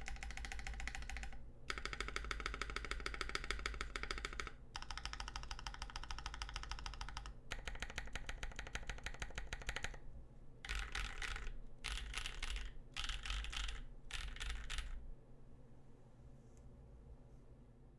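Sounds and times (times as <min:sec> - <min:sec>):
typing on mechanical keyboard: 0:00.0 - 0:10.0, 0:10.6 - 0:15.0.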